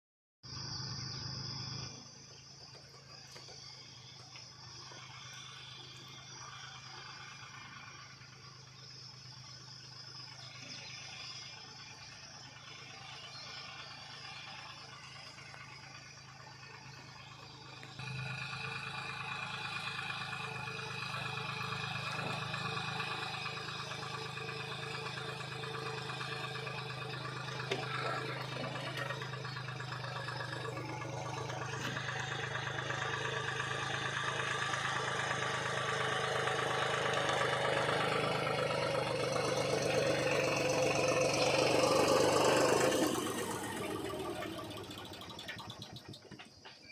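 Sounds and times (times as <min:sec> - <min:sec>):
tractor diesel engine running: 0:00.5 - 0:46.9.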